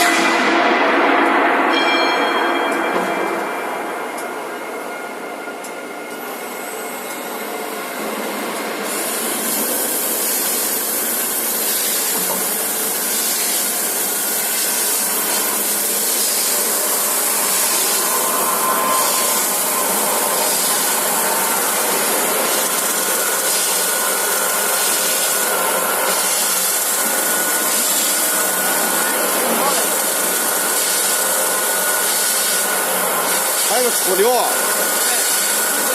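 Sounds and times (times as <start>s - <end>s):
drilling machine running: 6.2s - 35.9s
loud hiss: 8.8s - 35.9s.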